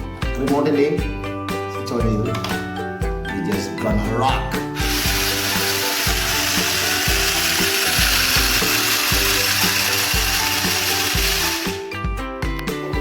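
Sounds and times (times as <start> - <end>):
background music with steady beat: 0.0 - 13.0
toy car motor whirring: 4.8 - 11.8.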